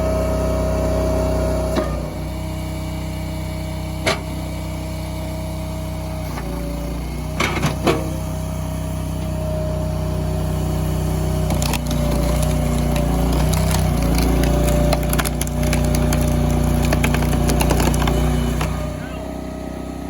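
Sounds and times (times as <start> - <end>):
hydraulic log splitter engine: 0.0 - 20.0
wood cracking and splintering: 11.3 - 19.0.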